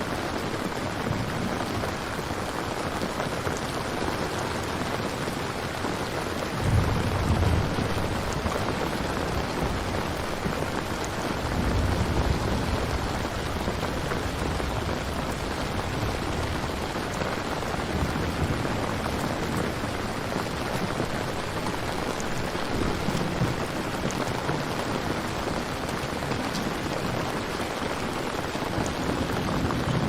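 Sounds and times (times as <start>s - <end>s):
steady rain falling: 0.0s - 30.0s
low thunder rumble: 6.5s - 25.3s, 28.7s - 30.0s.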